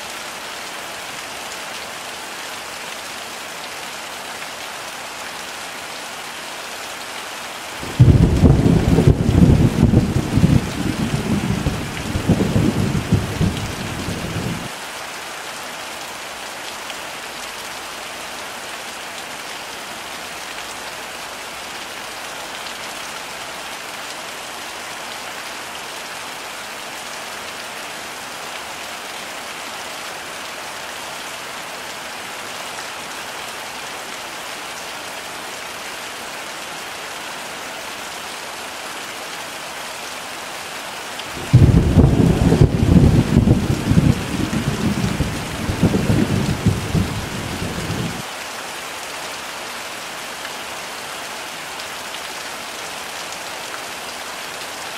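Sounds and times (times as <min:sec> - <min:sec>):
heavy rain: 0:00.0 - 0:54.9
thunder rumble: 0:07.8 - 0:14.7, 0:41.3 - 0:48.2.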